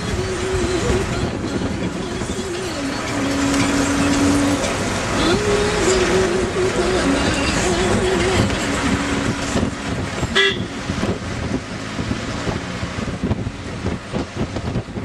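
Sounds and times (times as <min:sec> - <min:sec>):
road traffic: 0:00.0 - 0:15.0
vehicle horn toot: 0:10.3 - 0:10.8.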